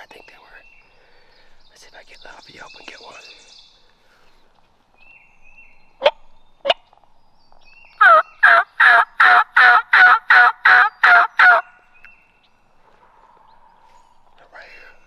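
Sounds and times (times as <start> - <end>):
turkey call clucks and yelps: 8.0 - 11.8.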